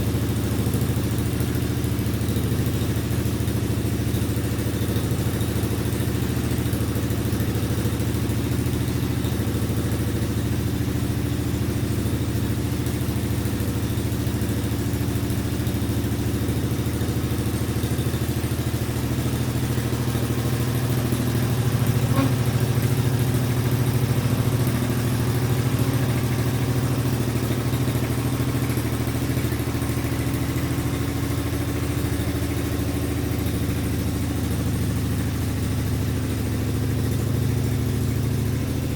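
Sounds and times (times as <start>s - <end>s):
engine idling with open exhaust: 0.0s - 38.9s.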